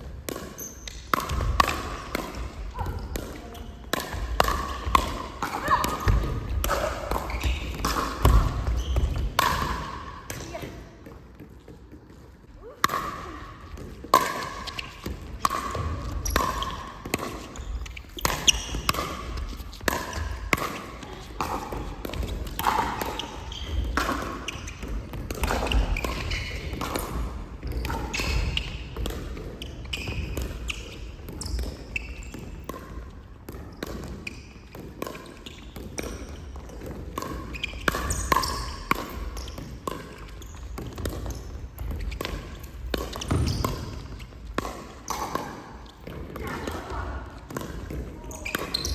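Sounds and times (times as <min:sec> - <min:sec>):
ball bouncing: 0:00.0 - 0:48.9.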